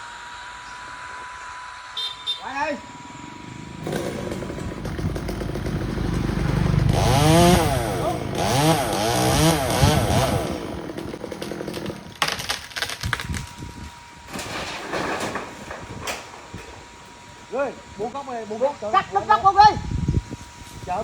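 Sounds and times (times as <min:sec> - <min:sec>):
chainsaw engine revving: 0:03.3 - 0:12.5
sharp cracks and knocks: 0:10.9 - 0:17.3.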